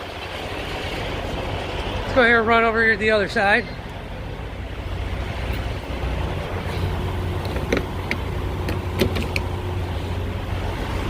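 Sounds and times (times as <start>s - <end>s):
diesel truck engine idling: 0.0s - 11.0s
light clicks and knocks: 7.4s - 9.6s.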